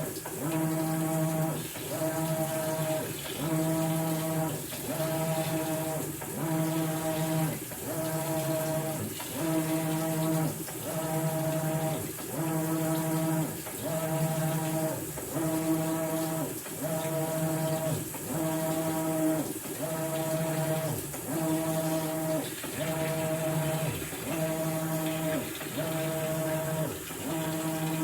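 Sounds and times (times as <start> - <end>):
washing machine motor humming: 0.0 - 28.0.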